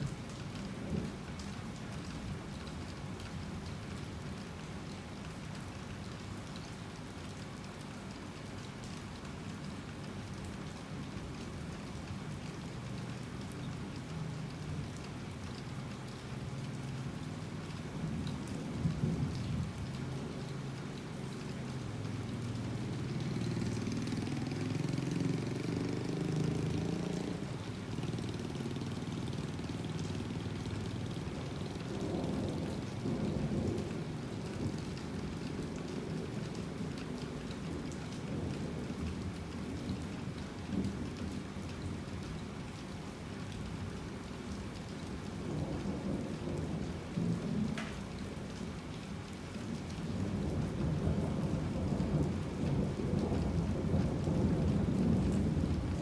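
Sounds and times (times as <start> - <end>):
heavy rain falling: 0.0 - 56.0
low thunder rumbles: 50.4 - 56.0.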